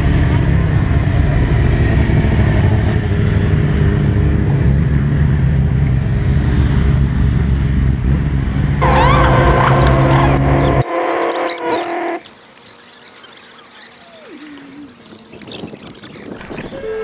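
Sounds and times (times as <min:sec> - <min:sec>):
motorcycle engines idling: 0:08.8 - 0:15.4
high wavering sound: 0:08.8 - 0:15.6.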